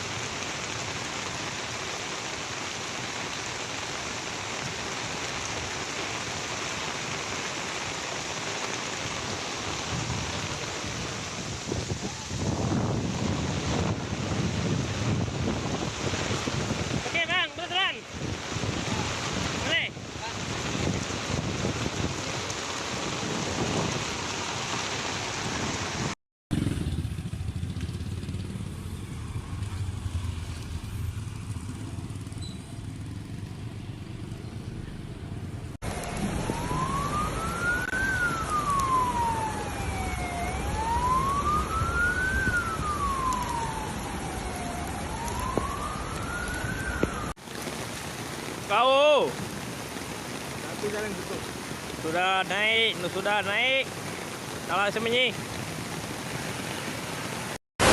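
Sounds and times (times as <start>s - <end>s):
emergency vehicle siren wailing: 35.8s - 47.4s.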